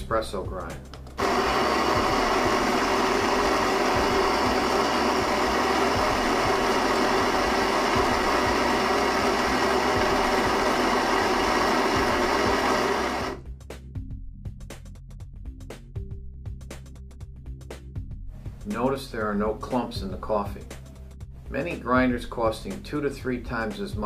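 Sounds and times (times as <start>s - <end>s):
coffee grinder grinding beans: 1.2s - 13.4s.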